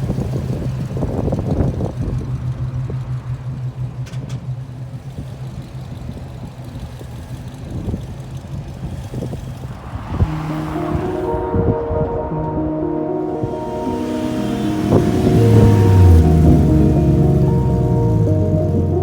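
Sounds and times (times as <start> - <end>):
car engine running: 0.0 - 11.8, 12.4 - 19.0
wind buffeting microphone: 7.5 - 19.0.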